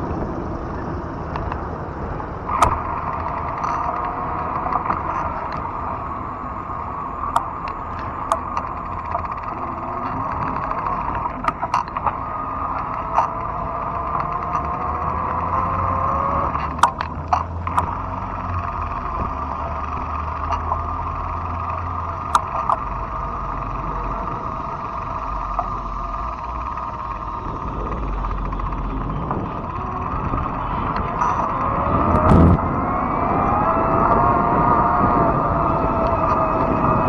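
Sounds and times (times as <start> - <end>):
electric bike motor and tyre hum: 0.0 - 37.0
sharp clicks or knocks: 11.3 - 12.2, 16.5 - 18.1, 22.3 - 22.9.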